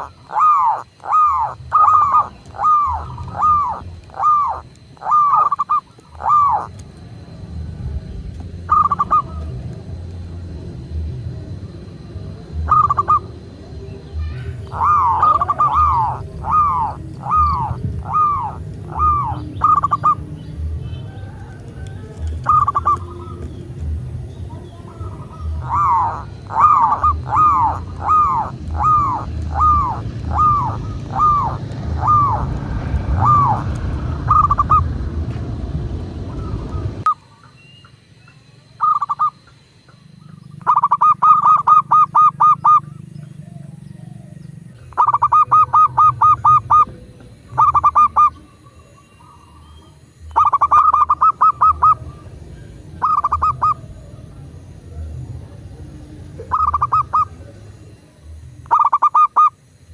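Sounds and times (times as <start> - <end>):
dove cooing: 0.0 - 37.4, 38.8 - 59.7
low background rumble: 0.0 - 38.1, 38.7 - 58.8.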